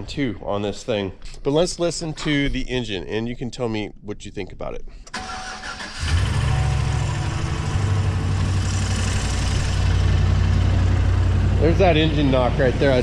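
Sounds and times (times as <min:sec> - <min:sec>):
truck engine starting: 0:05.0 - 0:13.0.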